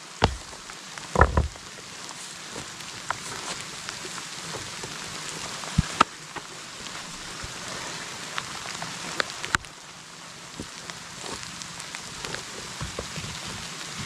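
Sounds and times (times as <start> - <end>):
heavy rain: 0.0 - 14.0
loud knocks: 1.2 - 1.6.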